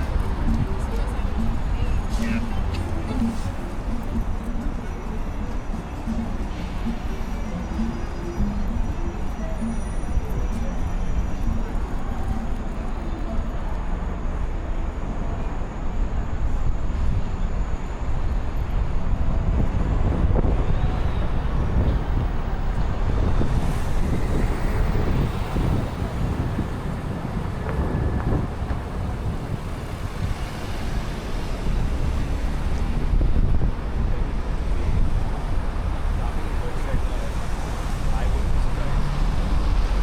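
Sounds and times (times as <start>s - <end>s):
vehicles passing: 0.0s - 40.0s
wind buffeting microphone: 16.0s - 40.0s.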